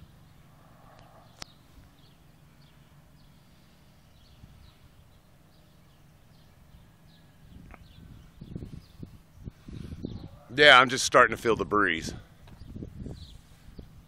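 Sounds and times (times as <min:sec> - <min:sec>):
breeze rumbling on microphone: 0:07.4 - 0:14.0.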